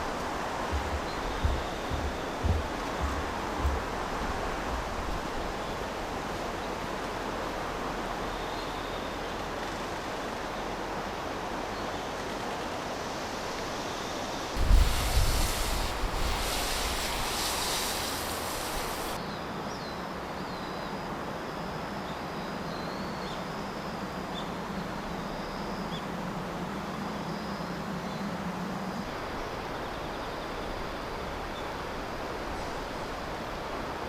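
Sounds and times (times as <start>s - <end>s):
wind buffeting microphone: 0.0s - 5.9s, 14.6s - 19.2s
outdoor hiss: 0.0s - 19.3s, 29.0s - 34.0s.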